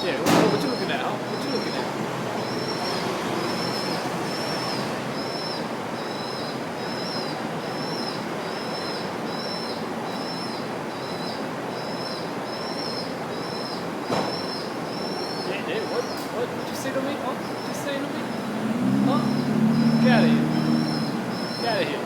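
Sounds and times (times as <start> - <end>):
street noise hiss: 0.0 - 22.0
high two-tone chirp: 17.4 - 22.0.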